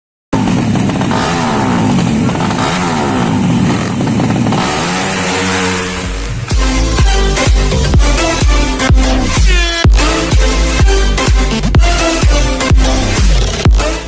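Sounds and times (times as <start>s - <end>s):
motorcycle engines revving hard: 0.4s - 14.0s
electronic dance music: 4.6s - 14.0s.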